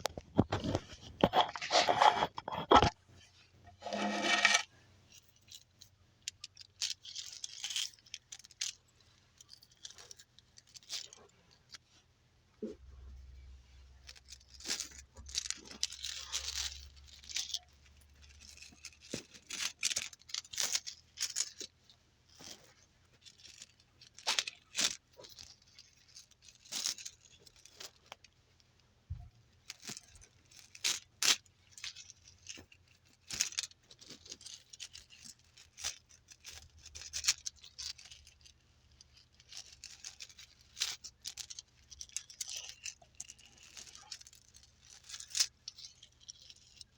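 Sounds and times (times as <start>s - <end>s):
scratchy rustles: 0.0s - 5.6s, 29.6s - 46.9s
soft crackles and clicks: 0.0s - 12.0s.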